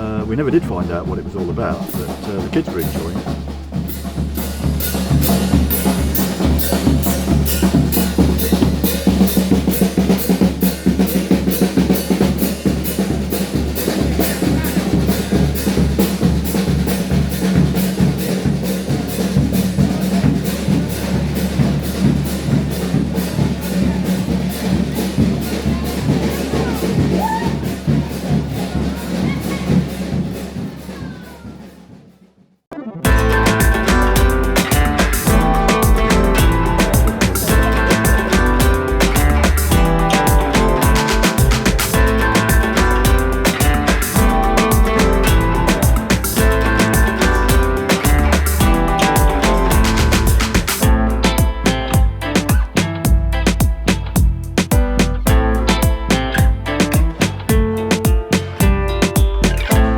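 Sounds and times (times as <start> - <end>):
bass and snare drums beating: 0.0 - 32.4, 33.1 - 59.9
steady low drone: 33.1 - 51.3.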